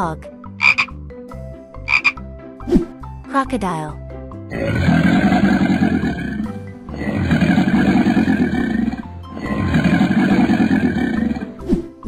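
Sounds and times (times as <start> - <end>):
background music: 0.0 - 12.0
crocodile growling: 4.5 - 11.6.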